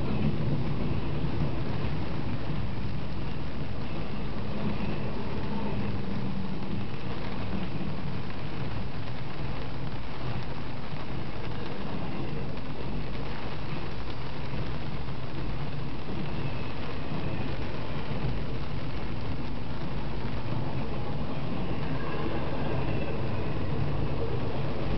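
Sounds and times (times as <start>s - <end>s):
freight train rumbling past: 0.0s - 24.9s
hiss of falling rain: 0.0s - 24.9s.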